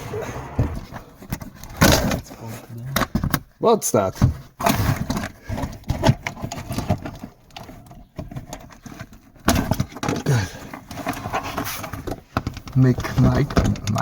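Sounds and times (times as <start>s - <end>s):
small plastic clicks and knocks: 12.0s - 14.0s.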